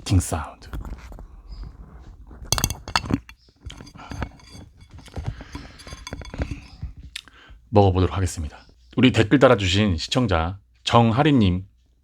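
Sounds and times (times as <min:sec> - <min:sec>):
utensils clinking against a dish: 0:02.5 - 0:06.9.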